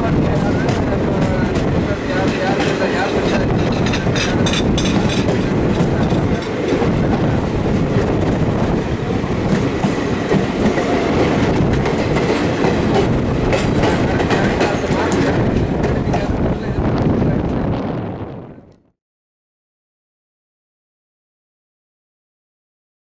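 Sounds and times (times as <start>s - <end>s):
train wheels rumbling on rail: 0.0s - 18.6s
clattering clicks over rail joints: 2.3s - 6.8s.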